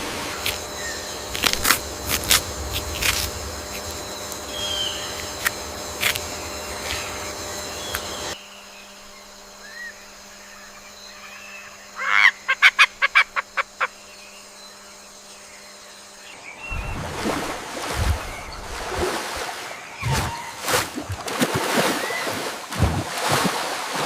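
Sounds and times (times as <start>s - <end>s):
rushing noise with low thumps: 1.1s - 5.9s.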